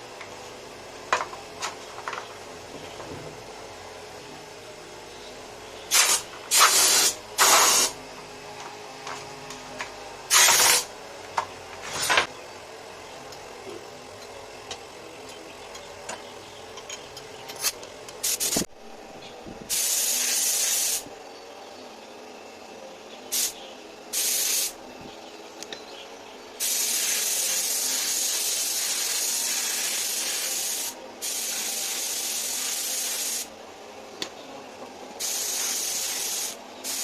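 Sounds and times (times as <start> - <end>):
compressed air hissing from nozzle: 5.9 - 8.0, 10.3 - 10.9, 18.2 - 18.7, 19.7 - 21.1, 23.3 - 24.8, 26.6 - 33.5, 35.2 - 37.0.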